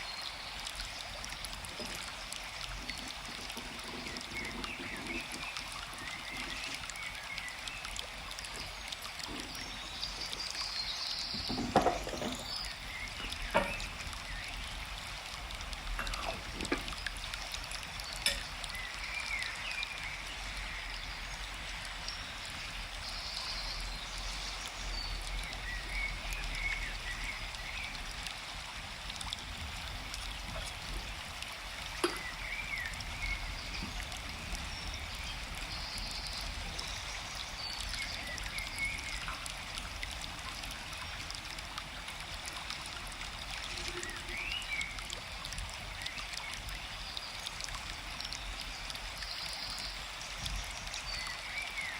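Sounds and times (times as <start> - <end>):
small birds chirping: 0.0 - 14.8
stream flowing: 0.0 - 51.9.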